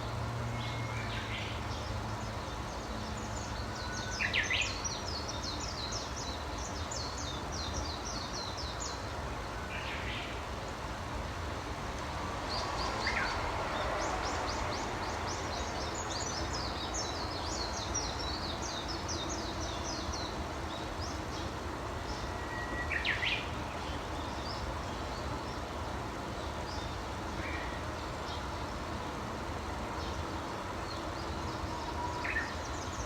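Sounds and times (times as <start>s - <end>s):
songbirds chirping: 0.0s - 33.0s.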